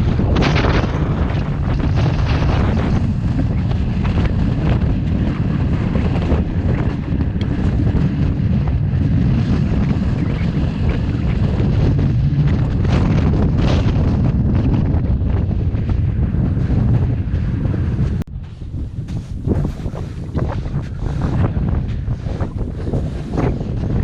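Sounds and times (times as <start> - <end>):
strong wind on microphone: 0.0 - 24.0.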